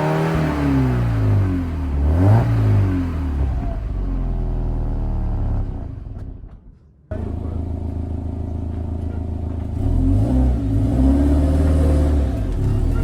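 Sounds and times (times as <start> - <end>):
car engine idling: 2.9 - 10.0.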